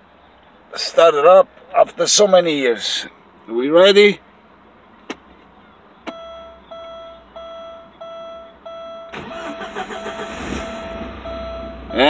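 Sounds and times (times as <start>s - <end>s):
dashboard warning chime beeping: 6.1s - 12.0s
starter cranking engine: 9.1s - 10.9s.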